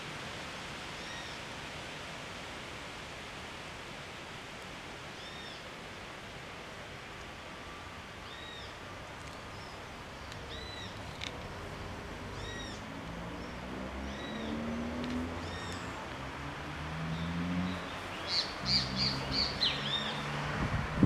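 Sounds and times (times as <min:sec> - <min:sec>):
bird chirping: 0:12.4 - 0:16.0, 0:17.0 - 0:20.3.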